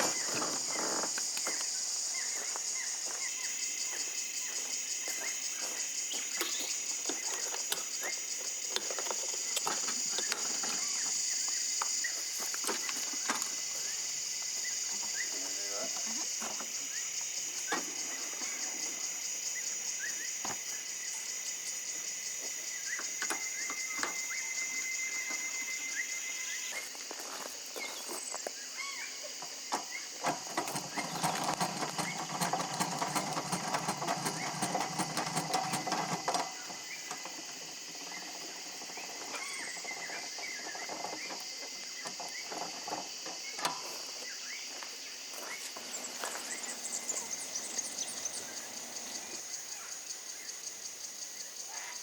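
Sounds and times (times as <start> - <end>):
bird chirps: 0.0 - 8.5, 45.4 - 50.6
insects trilling: 0.0 - 52.0.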